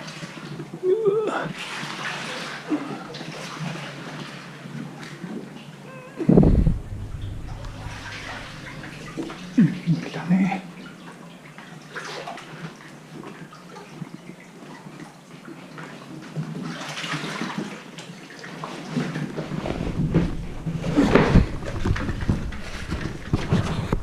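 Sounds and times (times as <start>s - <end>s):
low rumble: 6.2s - 11.2s, 19.3s - 24.0s
water splashing around kayak: 16.5s - 24.0s.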